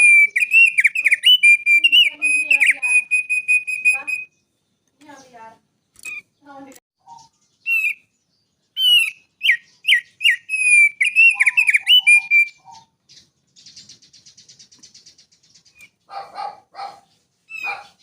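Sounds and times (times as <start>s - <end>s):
bird whistled notes: 0.0s - 4.4s, 7.0s - 8.1s, 8.8s - 12.9s
harsh bird notes: 0.0s - 4.5s, 8.7s - 12.7s
faint rapid bird trill: 0.0s - 18.0s.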